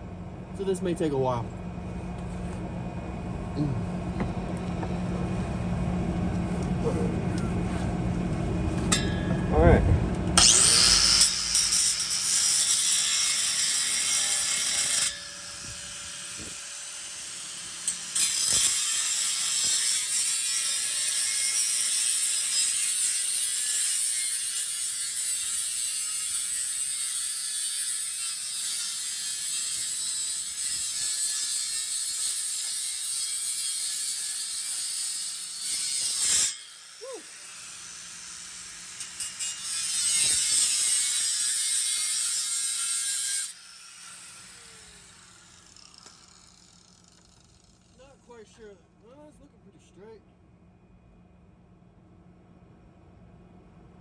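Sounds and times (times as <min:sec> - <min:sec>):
power tool grinding metal pipe: 0:10.4 - 0:48.0
tool spinning down whine: 0:44.1 - 0:48.0.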